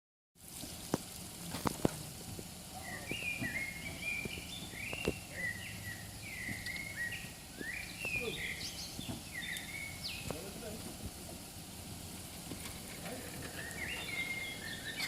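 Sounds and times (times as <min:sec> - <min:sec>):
birds singing: 0:02.7 - 0:10.8, 0:12.5 - 0:15.0.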